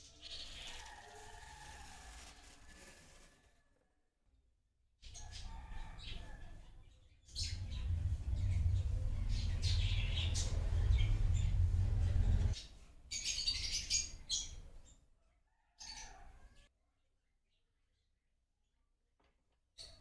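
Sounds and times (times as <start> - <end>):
small birds chirping: 5.1 - 15.0
loud low rumble: 7.3 - 12.6.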